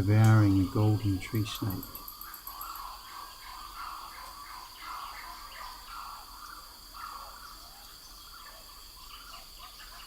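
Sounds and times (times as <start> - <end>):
high-pitched insect drone: 0.0 - 3.1
birds chirping: 0.0 - 10.0.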